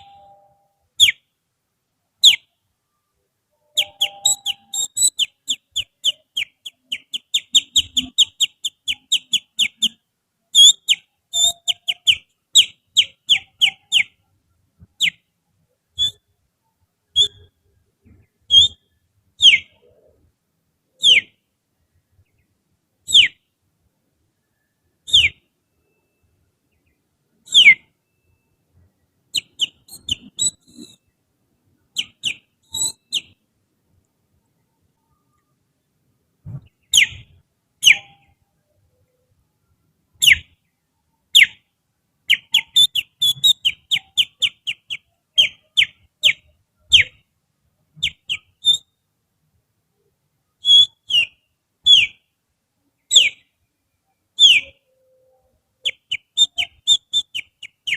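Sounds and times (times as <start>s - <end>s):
finger whistling bird song: 0.0s - 1.2s, 3.6s - 10.0s, 10.6s - 14.2s, 16.0s - 16.2s, 17.1s - 17.5s, 18.5s - 18.8s, 19.4s - 20.1s, 24.5s - 25.4s, 29.4s - 31.0s, 32.0s - 33.4s, 42.3s - 47.1s, 48.0s - 48.9s, 50.6s - 52.2s, 53.1s - 53.4s, 54.4s - 57.9s.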